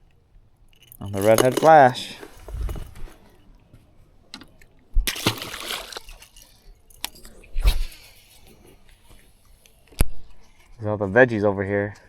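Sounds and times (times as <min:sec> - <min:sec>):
fish splashing at water surface: 0:05.0 - 0:07.0.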